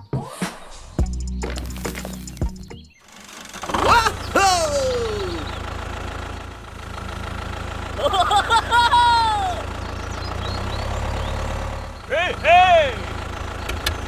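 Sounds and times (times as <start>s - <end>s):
engine humming at idle: 1.0s - 14.0s
high voice exclamation: 3.9s - 5.5s.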